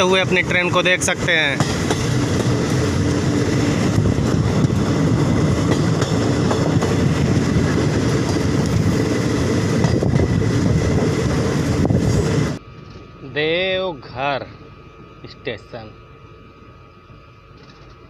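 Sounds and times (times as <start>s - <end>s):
train wheels rumbling on rails: 0.0s - 12.6s.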